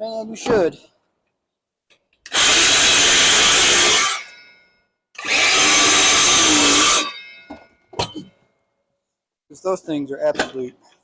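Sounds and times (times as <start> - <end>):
screw gun driving screws: 2.3 - 4.3, 5.2 - 7.2.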